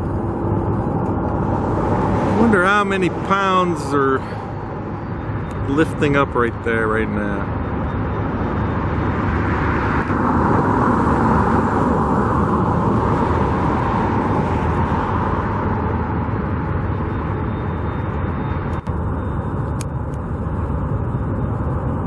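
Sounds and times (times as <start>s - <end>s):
road traffic rumbling: 0.0s - 22.0s.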